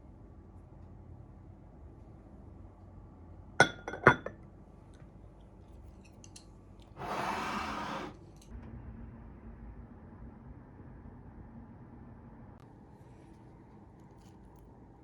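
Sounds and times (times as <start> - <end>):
tableware clinking: 3.6 - 4.4.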